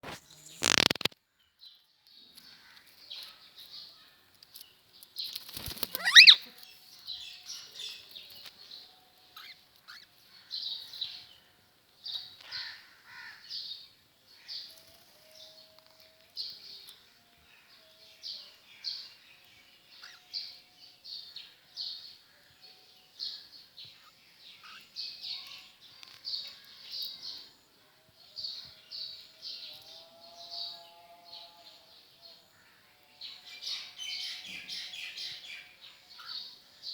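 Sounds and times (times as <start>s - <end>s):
parrot chirping: 5.9s - 6.5s
parrot screeching: 5.9s - 6.5s.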